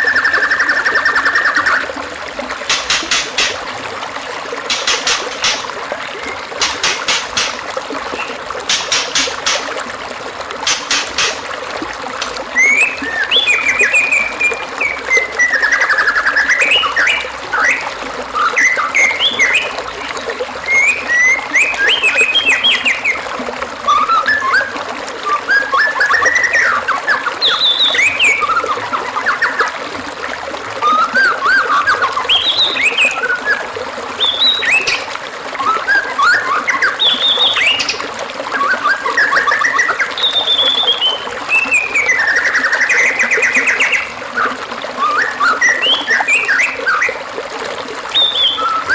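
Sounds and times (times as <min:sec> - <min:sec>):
trickle of running water: 0:00.0 - 0:48.9
bird singing whistled phrases: 0:12.6 - 0:17.8, 0:18.4 - 0:19.8, 0:20.7 - 0:23.2, 0:23.9 - 0:29.7, 0:30.8 - 0:35.0, 0:35.6 - 0:47.2, 0:48.1 - 0:48.9.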